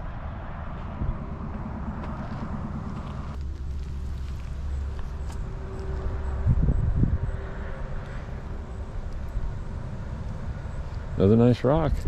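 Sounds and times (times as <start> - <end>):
brief low rumble: 0.0 - 7.3
distant road traffic: 0.0 - 12.0.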